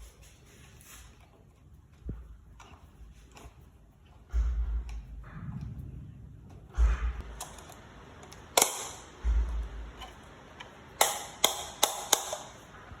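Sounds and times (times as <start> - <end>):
low rumble: 4.3 - 10.6
sharp clicks and taps: 6.7 - 12.7.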